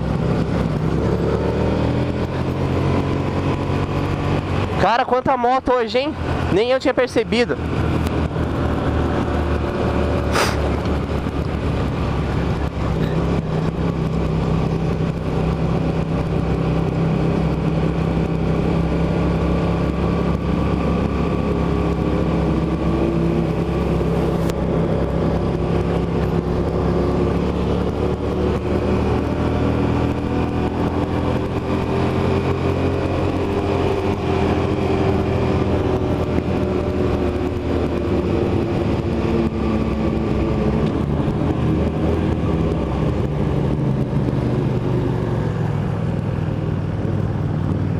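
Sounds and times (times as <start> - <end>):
rush of noise: 0.0 - 16.2
motorcycle engine cruising: 0.0 - 47.9.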